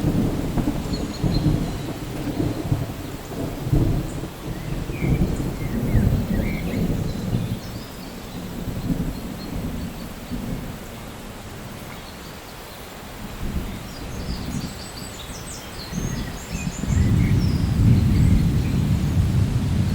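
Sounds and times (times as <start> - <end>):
rolling thunder: 0.0 - 11.8, 15.8 - 19.9
steady rain: 0.0 - 19.9.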